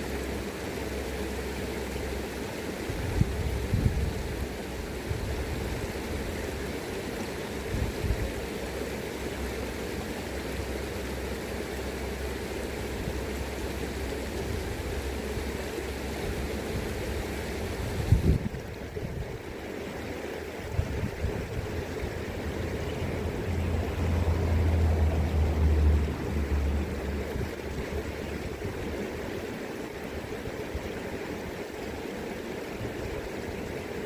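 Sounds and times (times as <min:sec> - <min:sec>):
river current rushing: 0:00.0 - 0:34.0
wind buffeting microphone: 0:02.9 - 0:04.4, 0:17.8 - 0:19.4, 0:20.7 - 0:29.0.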